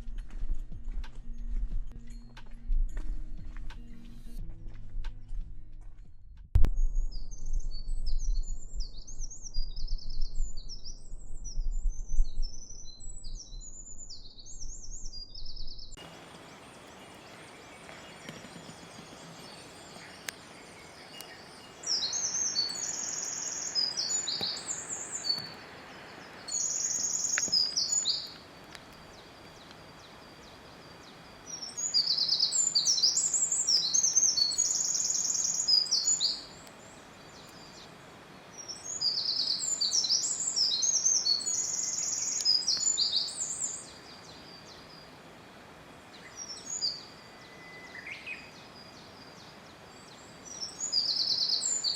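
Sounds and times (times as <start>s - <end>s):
low rumble: 0.0s - 16.0s
songbirds chirping: 7.2s - 51.9s
steady hiss: 16.0s - 47.4s.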